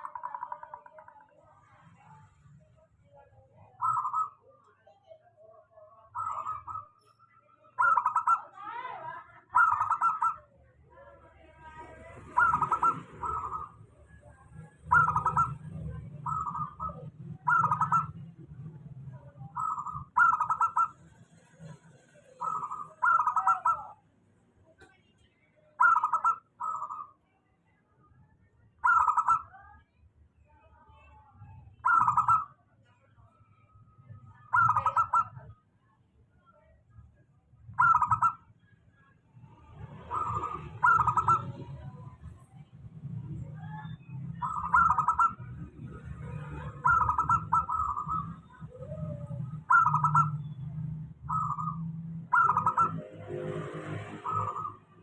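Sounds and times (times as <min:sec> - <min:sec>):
dove cooing: 0:03.8 - 0:04.6, 0:07.7 - 0:08.8, 0:09.4 - 0:10.5, 0:11.8 - 0:21.0, 0:21.6 - 0:24.0, 0:25.8 - 0:27.1, 0:28.8 - 0:29.5, 0:31.8 - 0:32.6, 0:34.4 - 0:35.5, 0:37.8 - 0:38.4, 0:40.0 - 0:42.2, 0:43.4 - 0:55.0.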